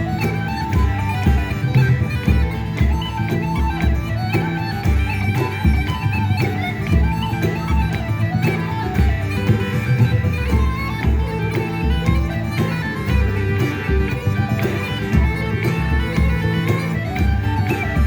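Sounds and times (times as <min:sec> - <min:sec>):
pipe or fiddle melody: 0:00.0 - 0:18.0
strummed accompaniment: 0:00.0 - 0:18.0.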